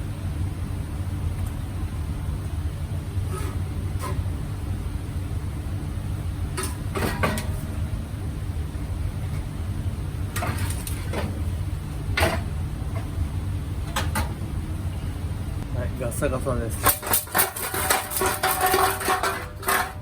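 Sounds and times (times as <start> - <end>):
steady low hum: 0.0 - 20.0
metal clanks and knocks: 6.6 - 7.7, 12.2 - 13.2, 13.8 - 14.4, 16.8 - 20.0.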